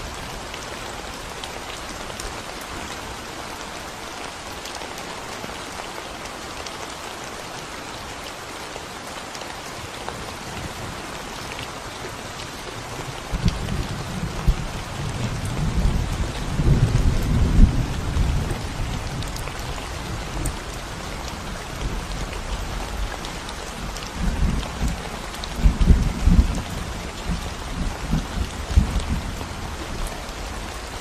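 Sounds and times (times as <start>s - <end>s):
rain on concrete: 0.0s - 31.0s
thunder rumble: 13.3s - 20.5s.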